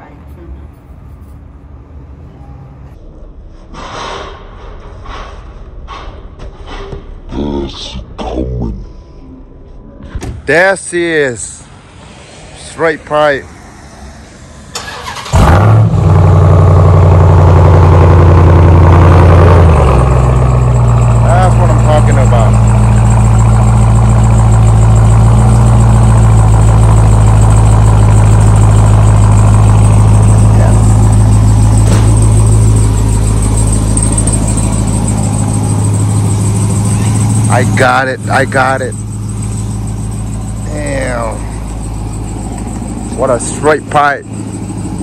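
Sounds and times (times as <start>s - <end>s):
truck engine idling loudly: 14.0s - 45.0s.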